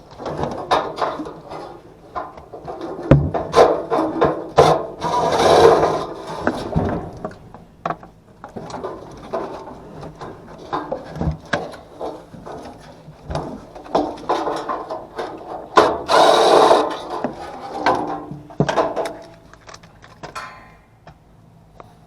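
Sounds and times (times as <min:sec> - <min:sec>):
tools scraping: 0:08.6 - 0:20.4.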